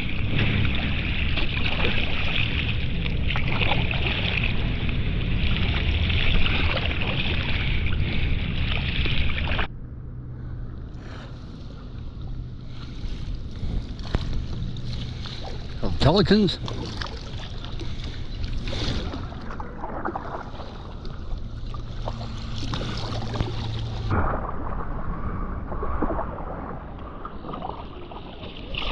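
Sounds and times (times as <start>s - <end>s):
paddle splashing water: 0.0s - 9.7s, 11.0s - 28.9s
low steady hum: 0.0s - 28.9s.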